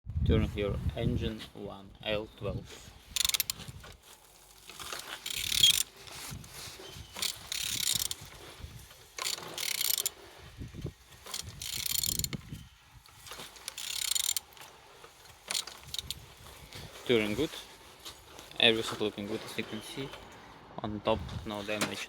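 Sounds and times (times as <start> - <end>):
engine turned over with wrench: 3.1 - 6.0, 7.0 - 16.5.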